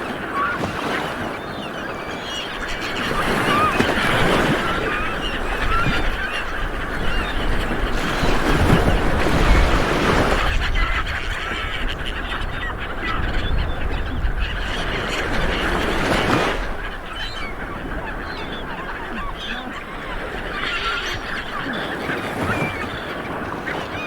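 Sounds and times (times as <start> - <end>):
birds calling: 0.0 - 24.0
waves breaking on a beach: 0.0 - 24.0.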